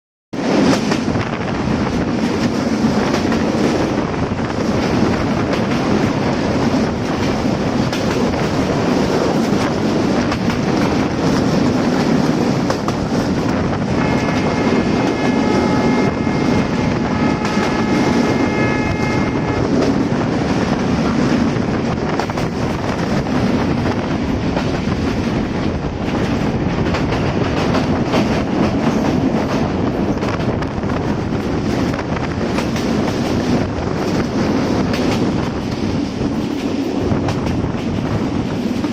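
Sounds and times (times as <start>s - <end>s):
train wheels rumbling on rails: 0.4s - 38.9s
locomotive horn chord: 14.0s - 19.8s.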